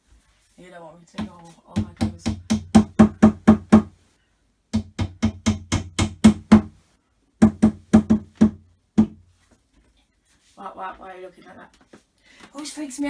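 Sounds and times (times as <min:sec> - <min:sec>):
hammer striking wooden cupboard: 0:01.2 - 0:03.9, 0:04.7 - 0:06.8, 0:07.4 - 0:09.2.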